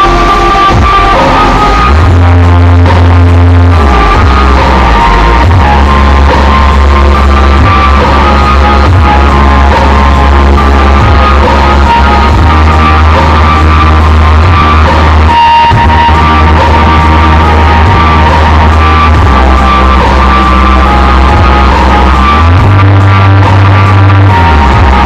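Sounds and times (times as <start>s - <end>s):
very loud bass-heavy music: 0.0s - 25.0s.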